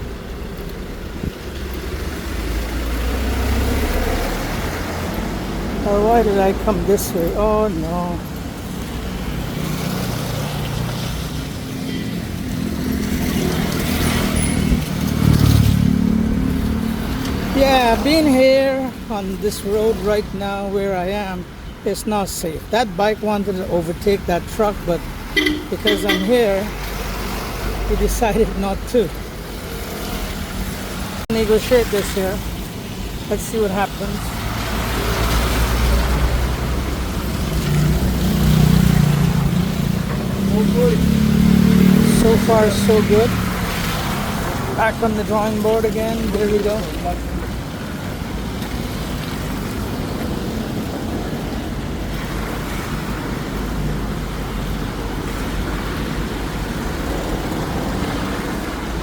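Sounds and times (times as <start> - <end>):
traffic engine rumble: 0.0 - 59.0
vehicle engine hum: 0.0 - 59.0
tyres hissing on road: 24.2 - 59.0.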